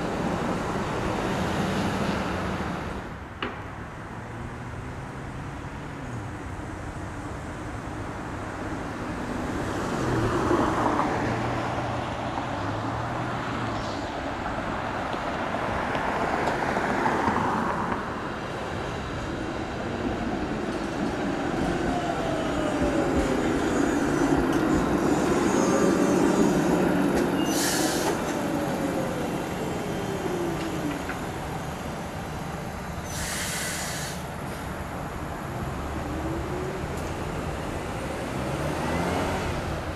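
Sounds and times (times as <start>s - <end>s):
streetcar rumbling past: 0.0s - 39.9s
short hiss: 33.0s - 34.7s.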